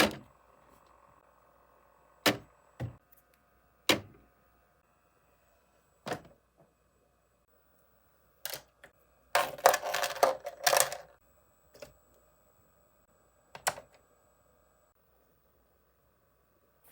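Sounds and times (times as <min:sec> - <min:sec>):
products clicking and knocking: 0:02.2 - 0:03.0.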